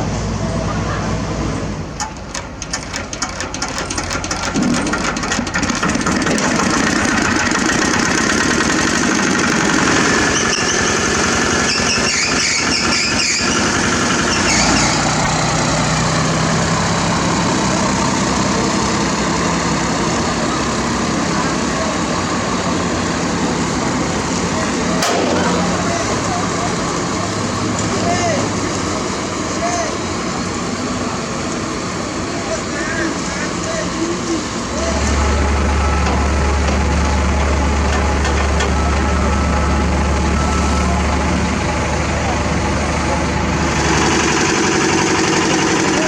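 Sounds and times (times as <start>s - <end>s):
diesel engine running: 0.0s - 46.0s
high squeal: 10.0s - 15.5s.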